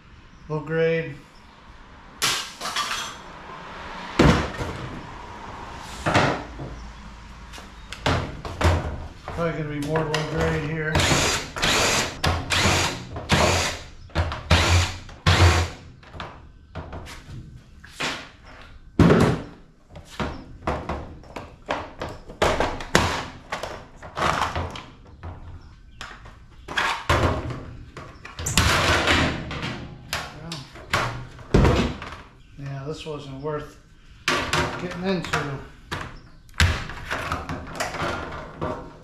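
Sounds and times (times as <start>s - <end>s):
power drill bursts: 11.0s - 13.9s, 14.5s - 15.8s
knocks and clanks of metal parts: 20.2s - 32.3s, 34.2s - 39.0s.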